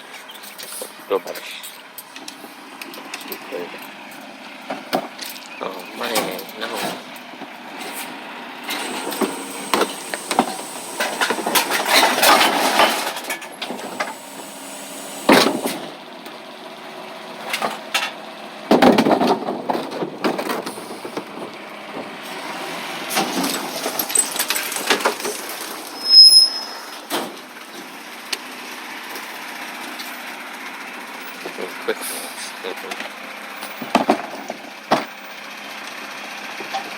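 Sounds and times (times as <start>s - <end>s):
recyclables rattling and clattering: 8.7s - 15.7s.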